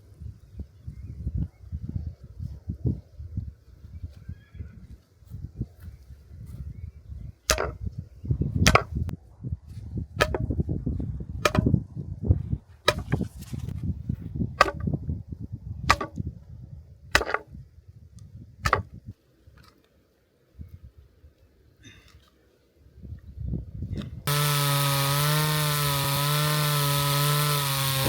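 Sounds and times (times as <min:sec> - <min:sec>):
axe chopping wood: 0:07.5 - 0:07.8, 0:08.6 - 0:09.0, 0:10.2 - 0:10.6, 0:11.4 - 0:11.8, 0:12.8 - 0:13.3, 0:14.6 - 0:15.0, 0:15.9 - 0:16.2, 0:17.1 - 0:17.5, 0:18.6 - 0:19.0, 0:24.3 - 0:28.0.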